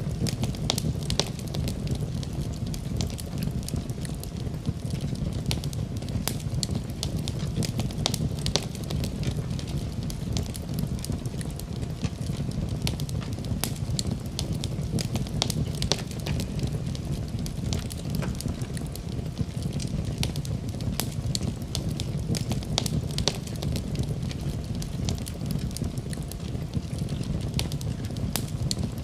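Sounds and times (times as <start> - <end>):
low rumble of flames: 0.0 - 29.0
wood fire crackling and popping: 0.0 - 29.0.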